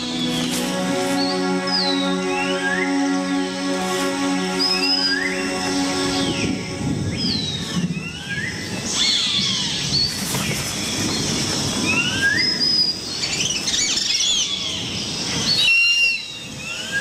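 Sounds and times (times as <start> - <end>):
low rustling noise: 0.0 - 7.7.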